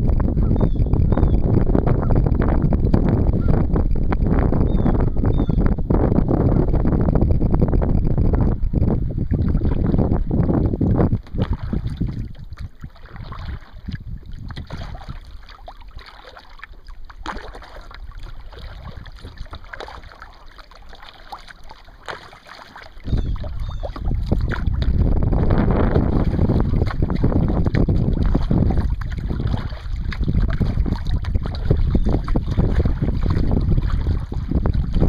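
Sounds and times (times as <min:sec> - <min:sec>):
wind buffeting microphone: 0:00.0 - 0:35.0
paddle splashing in water: 0:11.0 - 0:35.0.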